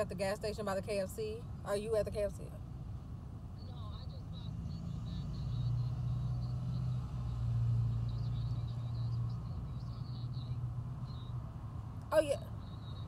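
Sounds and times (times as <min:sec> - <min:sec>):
car engine idling: 0:00.0 - 0:13.0
faint high chirping: 0:12.2 - 0:13.0.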